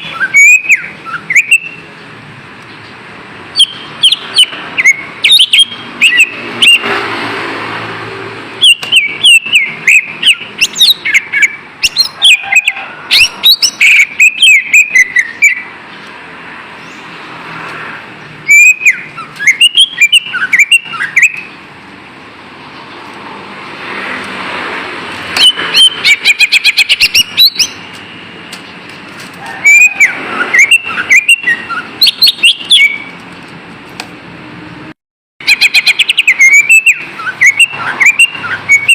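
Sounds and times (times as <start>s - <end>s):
bird whistles and chirps: 0.0s - 1.8s, 3.6s - 6.9s, 8.6s - 15.7s, 18.4s - 21.6s, 25.4s - 27.8s, 29.6s - 33.1s, 35.4s - 38.9s
steady background noise: 0.0s - 38.9s.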